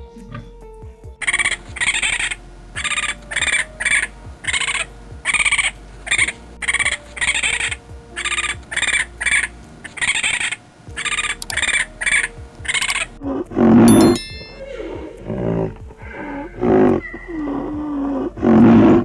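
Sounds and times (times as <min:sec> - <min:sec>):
animal harsh calls: 0:13.2 - 0:19.0.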